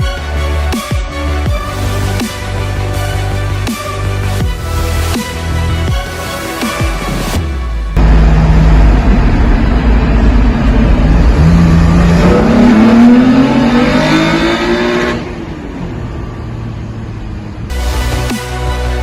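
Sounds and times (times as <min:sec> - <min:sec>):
car engine accelerating: 0:07.6 - 0:17.7.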